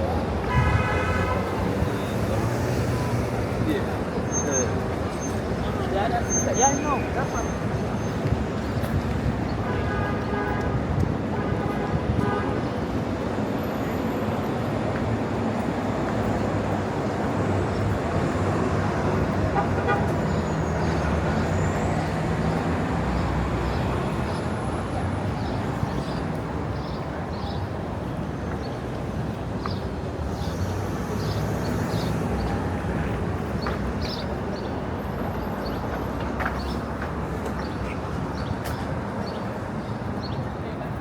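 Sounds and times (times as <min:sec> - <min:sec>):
passing traffic rumble: 0:00.0 - 0:09.5.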